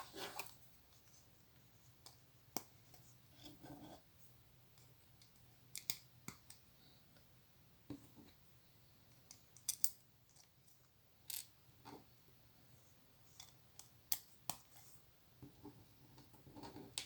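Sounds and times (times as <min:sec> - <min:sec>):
soft rustle: 0:00.0 - 0:01.9.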